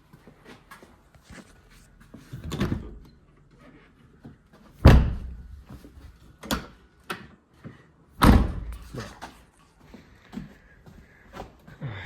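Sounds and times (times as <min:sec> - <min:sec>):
door shutting with thud: 0:02.4 - 0:03.0, 0:04.8 - 0:05.8, 0:08.2 - 0:09.0.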